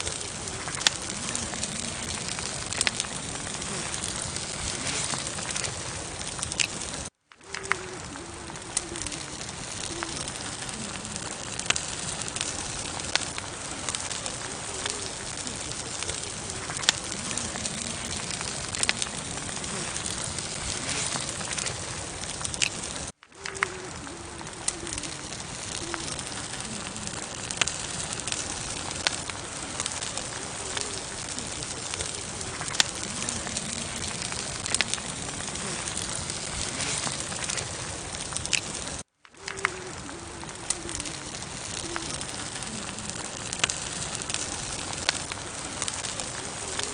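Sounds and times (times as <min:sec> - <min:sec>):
campfire crackling and popping: 0:00.0 - 0:46.9
low wavering bird calls: 0:07.5 - 0:22.0, 0:23.4 - 0:27.2.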